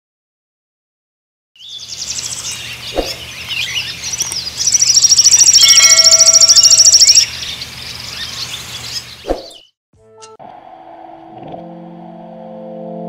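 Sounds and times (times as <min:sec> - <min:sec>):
rapid bird trill: 0:01.6 - 0:09.7
songbird chirping: 0:01.6 - 0:09.7.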